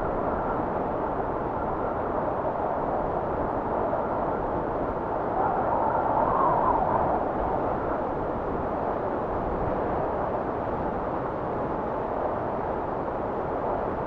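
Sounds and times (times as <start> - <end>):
blizzard wind blowing: 0.0 - 14.0.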